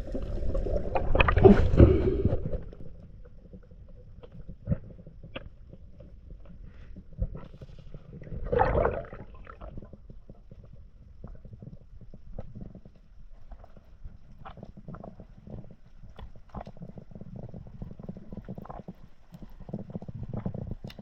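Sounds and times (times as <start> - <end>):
water gurgling burst: 0.0 - 2.9, 8.2 - 10.0
low underwater rumble: 0.0 - 21.0.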